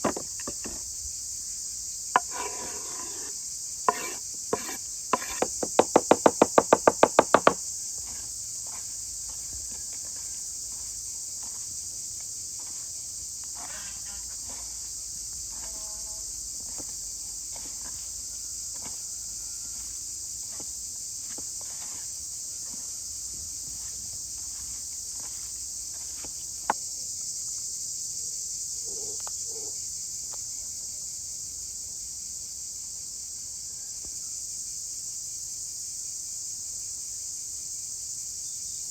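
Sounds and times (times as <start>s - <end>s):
crickets chirping: 0.0s - 38.9s
sharp knocks: 3.9s - 7.6s.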